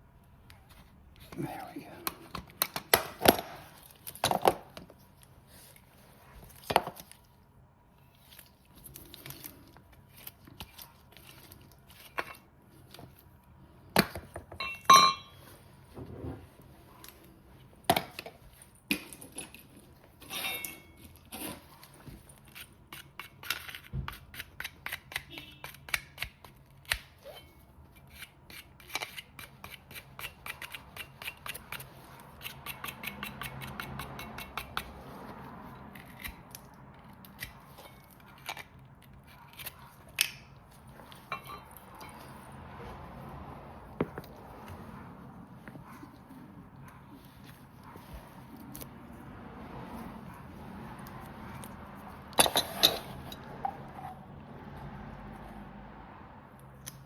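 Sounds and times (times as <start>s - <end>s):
ringing metal clink: 14.6s - 15.4s.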